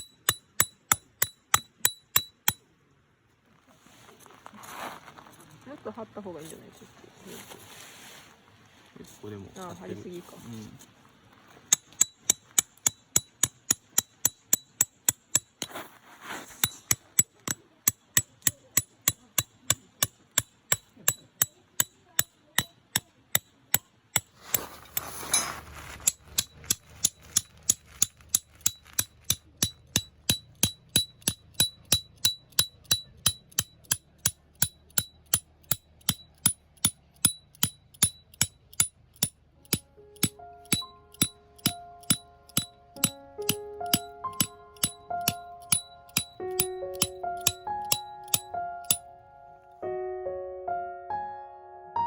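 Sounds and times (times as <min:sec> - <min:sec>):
hammering tent pegs: 0:24.1 - 0:49.0.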